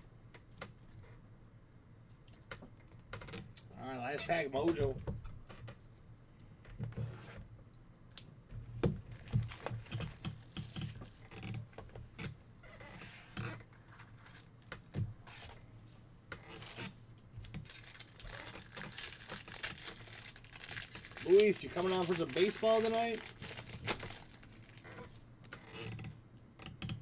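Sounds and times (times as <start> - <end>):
card pack foil rustling and scraping: 17.4 - 25.2.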